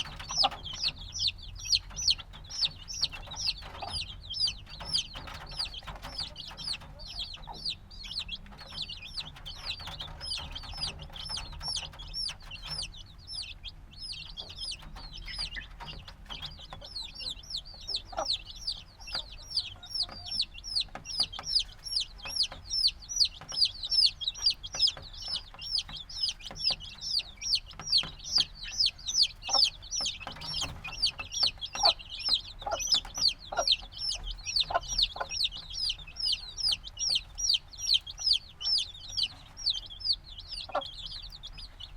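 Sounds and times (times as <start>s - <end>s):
chicks peeping: 0.0s - 41.9s.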